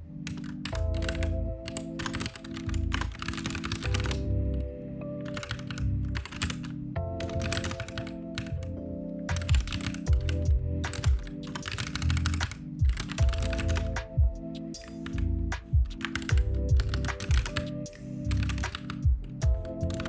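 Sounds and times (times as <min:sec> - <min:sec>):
lofi background music: 0:00.0 - 0:20.0
computer keyboard typing: 0:00.2 - 0:20.0.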